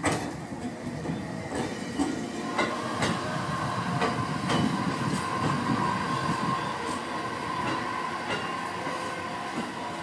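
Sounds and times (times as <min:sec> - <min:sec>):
train wheels clacking over rail joints: 0:00.0 - 0:03.3, 0:04.0 - 0:05.6, 0:07.6 - 0:08.6
low train rumble: 0:00.0 - 0:10.0.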